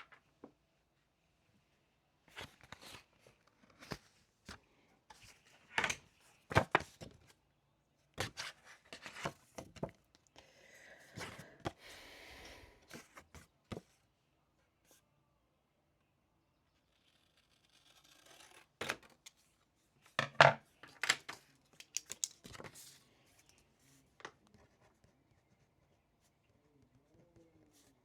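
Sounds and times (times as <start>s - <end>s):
paper cards tapping and rustling: 8.2s - 10.1s, 20.2s - 23.6s.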